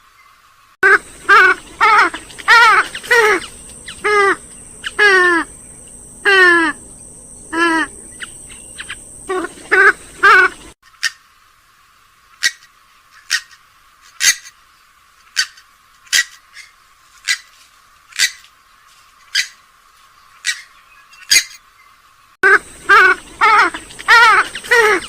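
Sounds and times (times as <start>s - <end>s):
recorded bird clicking calls: 1.1s - 6.9s, 7.5s - 11.2s, 15.2s - 17.5s, 20.4s - 21.6s, 22.6s - 25.0s.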